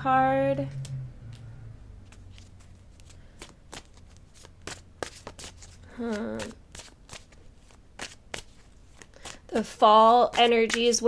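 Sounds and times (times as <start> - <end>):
cards being shuffled: 2.0 - 11.0.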